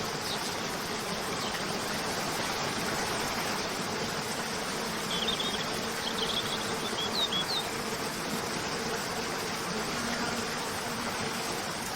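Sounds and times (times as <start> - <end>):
faint buzzing hum: 0.0 - 11.9
small birds chirping: 5.0 - 7.8.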